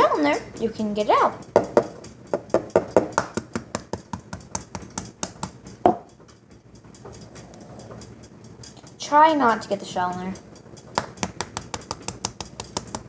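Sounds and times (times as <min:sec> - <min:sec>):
utensil clicking against measuring cup: 0:10.8 - 0:13.0.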